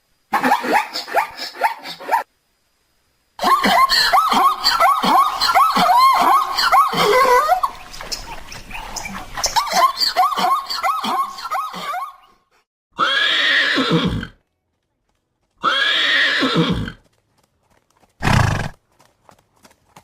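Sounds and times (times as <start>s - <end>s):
horse whinnying: 13.0s - 14.4s, 15.6s - 17.0s, 18.2s - 18.8s.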